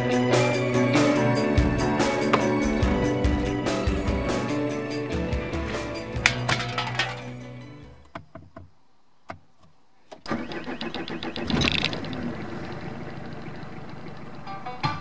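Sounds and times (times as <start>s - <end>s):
car engine starting and running: 0.6s - 6.0s, 10.2s - 15.0s.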